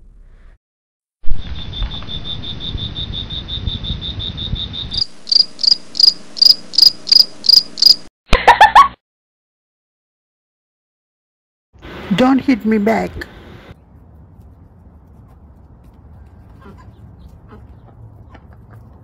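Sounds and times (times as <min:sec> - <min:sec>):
high chirping: 0:01.5 - 0:08.0.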